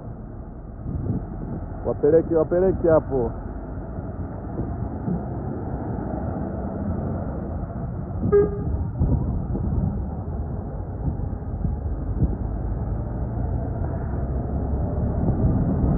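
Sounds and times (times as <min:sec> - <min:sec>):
heavy truck engine rumble: 0:00.0 - 0:15.9
truck horn toot: 0:08.2 - 0:08.8.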